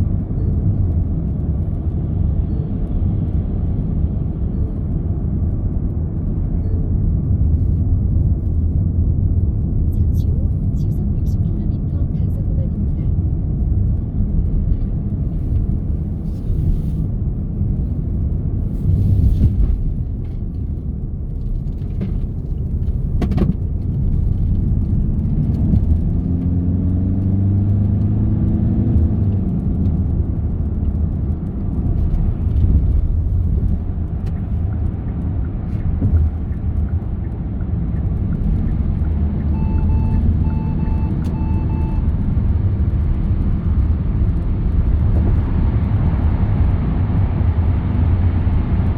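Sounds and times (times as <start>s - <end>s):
car engine and tyre rumble: 0.0s - 48.9s
short electronic beeps: 39.4s - 42.2s.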